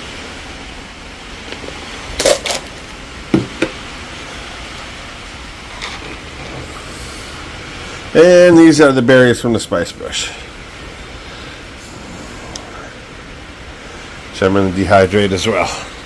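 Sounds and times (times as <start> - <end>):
steady background hiss: 0.0 - 16.0
short knocks: 3.3 - 3.8.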